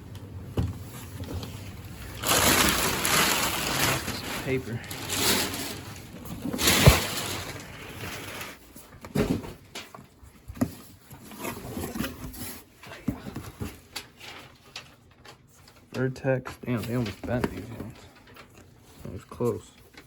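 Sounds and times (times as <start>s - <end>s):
packaging rustling: 0.8s - 8.8s.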